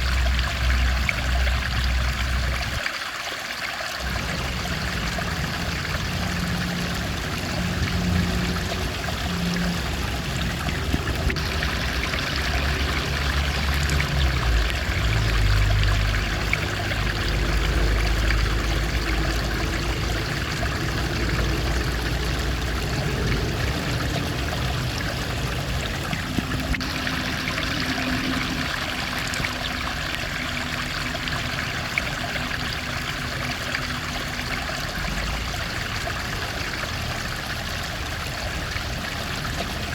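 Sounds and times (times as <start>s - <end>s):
stream water flowing: 0.0s - 39.9s
low rumble: 4.0s - 34.2s.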